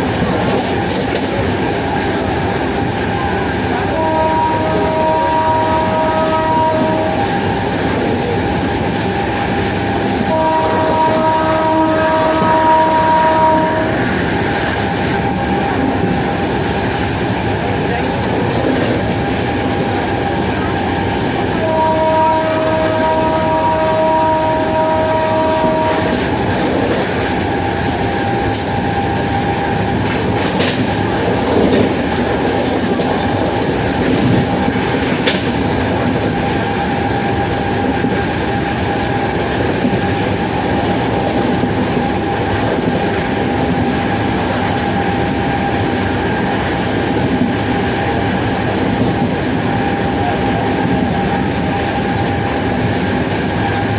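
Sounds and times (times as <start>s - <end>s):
electric locomotive whine: 0.0s - 53.9s
rail noise: 0.0s - 53.9s
train horn chord: 3.8s - 7.4s, 10.2s - 14.3s, 21.5s - 26.4s.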